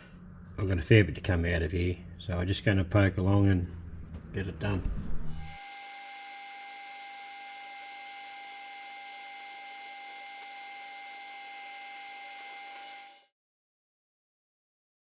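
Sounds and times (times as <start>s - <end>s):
metal lathe whine and hum: 5.3s - 13.3s.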